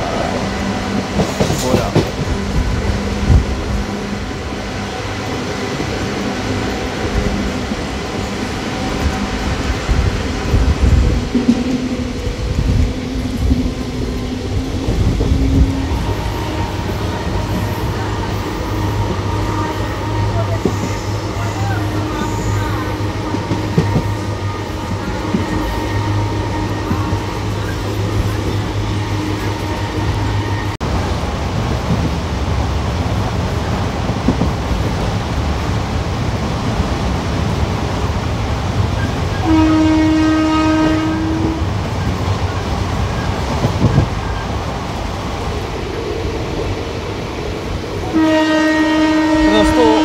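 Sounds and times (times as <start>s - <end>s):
train running noise on board: 0.0s - 50.0s
train horn: 15.2s - 30.8s, 39.3s - 42.1s, 48.0s - 50.0s.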